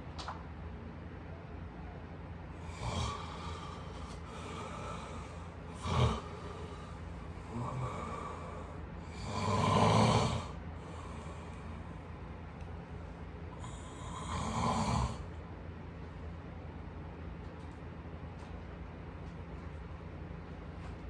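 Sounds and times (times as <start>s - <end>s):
person snoring: 2.6s - 11.8s, 13.6s - 15.3s.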